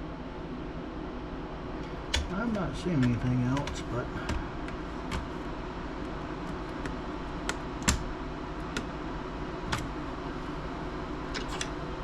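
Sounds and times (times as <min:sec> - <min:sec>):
low background hum: 0:00.0 - 0:12.0
hand tools clicking and tapping: 0:01.8 - 0:05.3.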